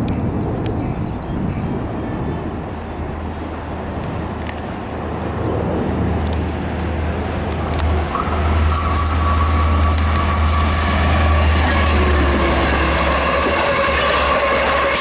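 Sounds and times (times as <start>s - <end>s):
diesel train engine drone: 0.0s - 15.0s.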